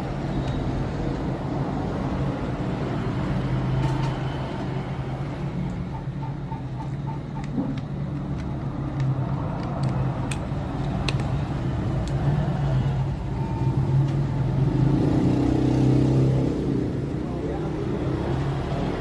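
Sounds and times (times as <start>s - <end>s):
low rumble of road traffic: 0.0s - 19.0s
sharp plastic clicks: 6.7s - 12.4s.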